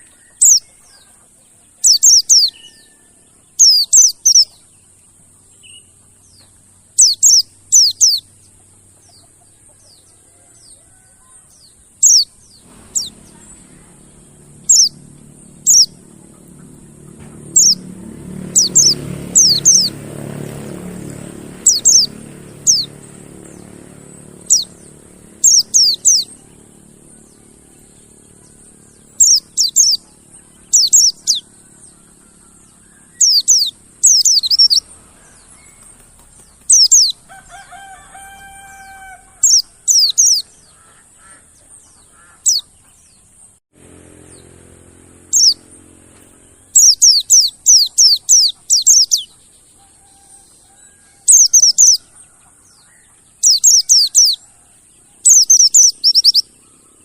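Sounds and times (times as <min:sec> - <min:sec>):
high-pitched bird calls: 0:00.0 - 0:43.3, 0:44.2 - 0:57.0
lower-pitched bird call: 0:10.0 - 0:43.0, 0:45.2 - 0:57.0.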